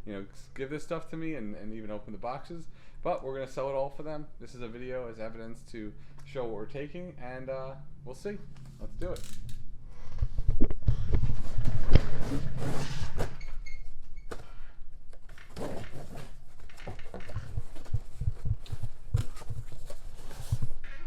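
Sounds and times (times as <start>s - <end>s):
cardboard rustling and scraping: 10.0s - 13.6s, 15.2s - 21.0s.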